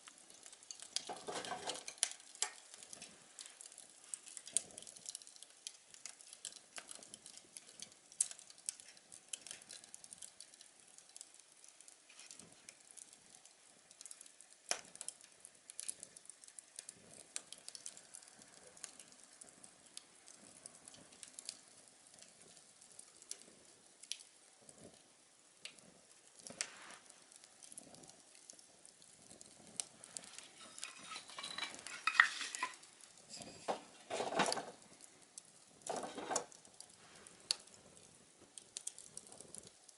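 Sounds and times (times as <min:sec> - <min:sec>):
wood fire crackling: 0:00.0 - 0:39.9
rustling clatter: 0:30.1 - 0:34.8, 0:35.8 - 0:36.6.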